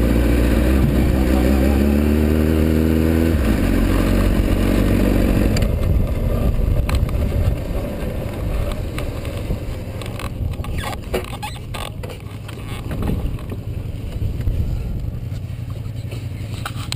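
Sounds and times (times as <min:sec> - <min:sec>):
motorcycle engine at low speed: 0:00.0 - 0:16.9
wind on the microphone: 0:05.4 - 0:11.2.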